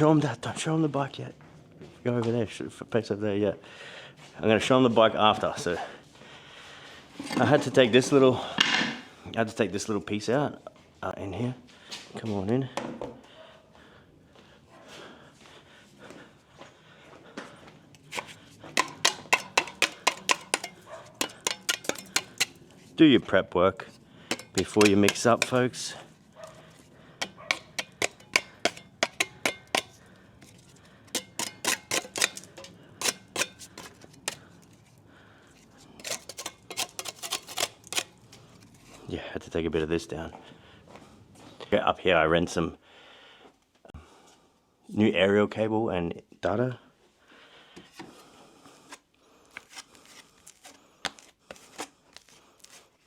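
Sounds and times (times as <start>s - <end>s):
hand tools tapping hard surfaces: 18.1s - 22.6s, 24.3s - 26.6s, 27.2s - 34.4s, 36.0s - 38.1s.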